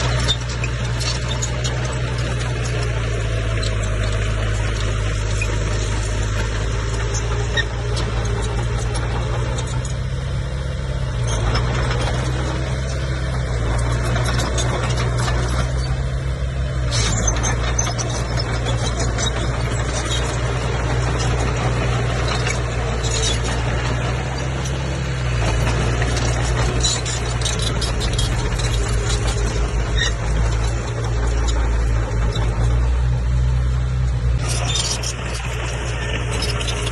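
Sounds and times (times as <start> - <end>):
bulldozer diesel engine: 0.0 - 36.9
steel tracks squeaking and clicking: 0.0 - 36.9.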